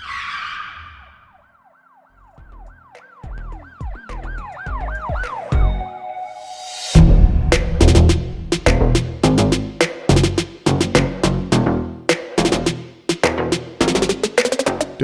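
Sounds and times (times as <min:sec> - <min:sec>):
siren-like tone: 0:00.0 - 0:08.5
swoosh hit: 0:06.4 - 0:09.9
bass thumps: 0:07.0 - 0:11.8.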